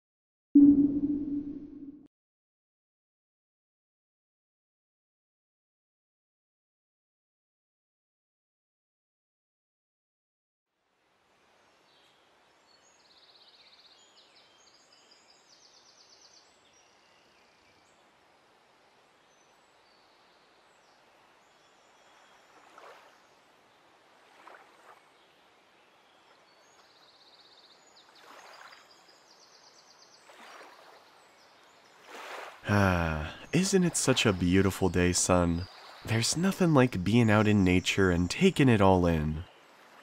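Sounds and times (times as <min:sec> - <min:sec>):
soft hiss of water: 0:16.7 - 0:32.7.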